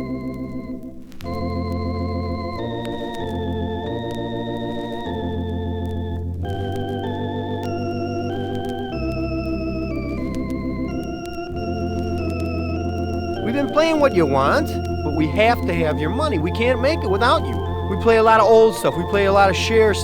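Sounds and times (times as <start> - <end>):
organ music: 0.0 - 20.0.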